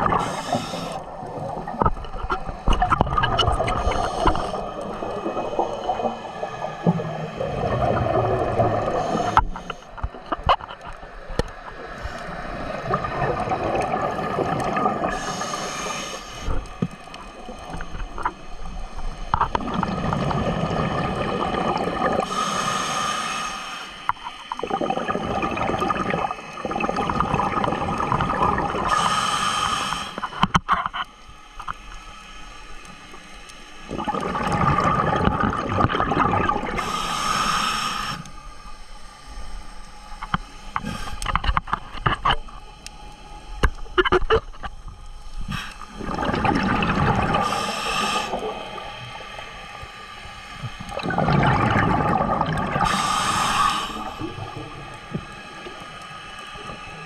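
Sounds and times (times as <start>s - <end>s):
seawater sloshing and gurgling: 0.0s - 10.9s, 33.9s - 36.9s, 45.5s - 49.0s, 50.7s - 55.8s.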